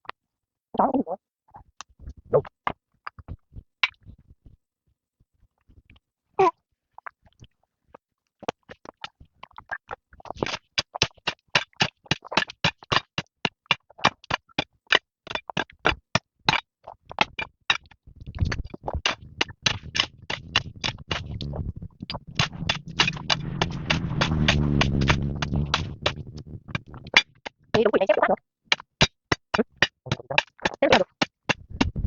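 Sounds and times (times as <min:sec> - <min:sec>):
steady low hum: 0:19.2 - 0:27.3.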